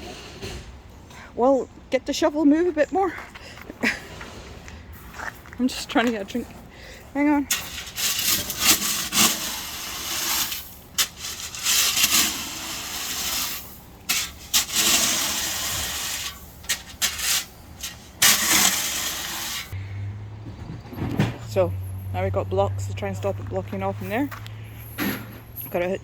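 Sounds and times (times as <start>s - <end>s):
shovel scraping gravel: 7.4s - 19.8s.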